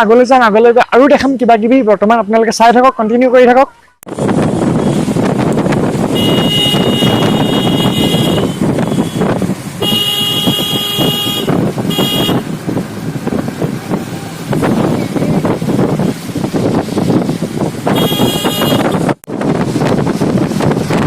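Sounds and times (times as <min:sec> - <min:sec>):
vehicle road and engine noise: 0:04.1 - 0:21.0
car horn blasts: 0:06.1 - 0:12.5, 0:17.9 - 0:19.1.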